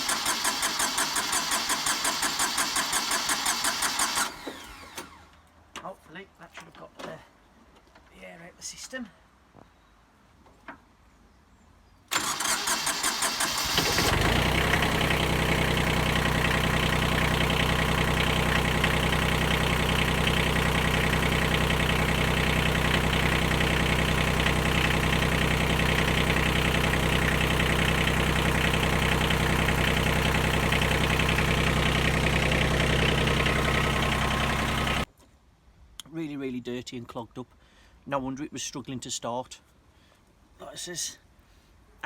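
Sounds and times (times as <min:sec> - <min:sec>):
diesel engine idling: 0:00.0 - 0:05.2, 0:12.2 - 0:35.1
starter cranking diesel engine: 0:00.0 - 0:05.3, 0:12.1 - 0:35.1.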